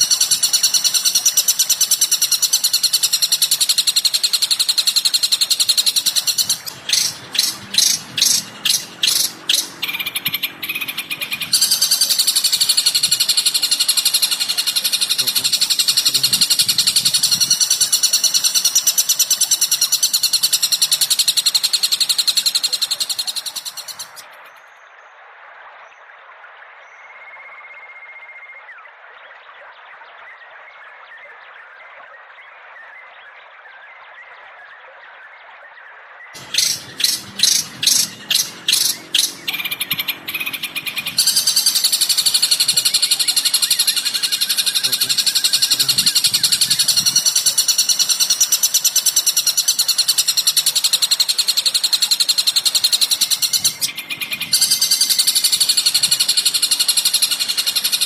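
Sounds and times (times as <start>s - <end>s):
bird chattering call: 0.0s - 24.3s, 36.4s - 58.0s.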